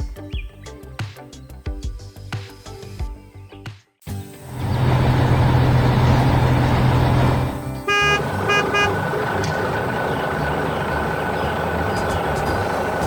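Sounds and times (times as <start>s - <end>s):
heavy vehicle engine running: 4.4s - 13.0s
short horn toots: 7.9s - 9.2s.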